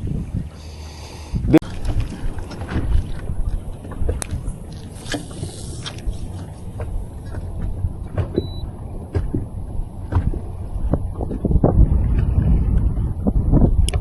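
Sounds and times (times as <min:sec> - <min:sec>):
boat engine rumble: 0:00.0 - 0:14.0
short high beep: 0:08.4 - 0:08.6.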